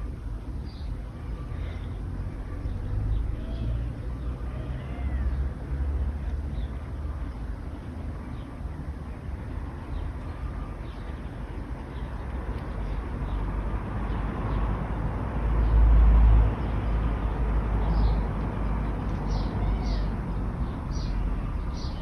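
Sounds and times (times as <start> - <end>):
birds chirping: 0.0 - 14.9, 16.5 - 22.0
passing vehicle rumble: 0.0 - 22.0
traffic wash: 0.0 - 22.0.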